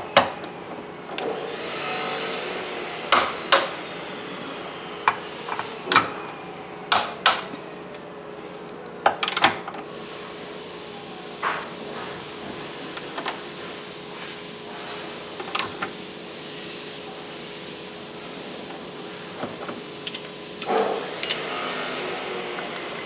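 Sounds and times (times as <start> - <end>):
steady background hum: 0.0 - 23.0
clicks and knocks of parts handled: 9.1 - 9.8, 19.5 - 21.5.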